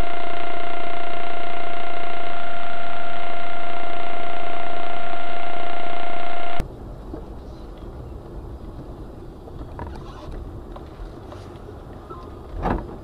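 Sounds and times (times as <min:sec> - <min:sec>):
loud steady pitched tone: 0:00.0 - 0:06.6
car driving rumble: 0:06.6 - 0:13.0.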